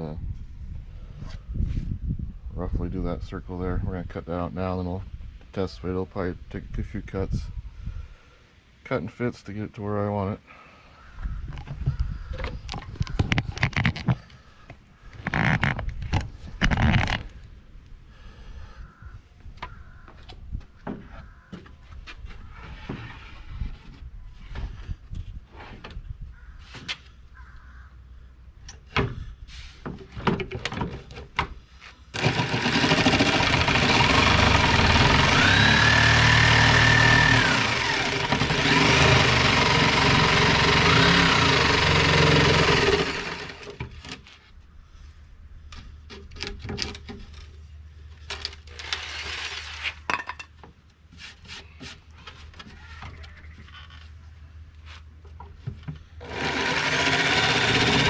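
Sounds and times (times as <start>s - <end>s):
electric jigsaw cutting plywood: 32.2s - 43.9s, 56.2s - 58.0s.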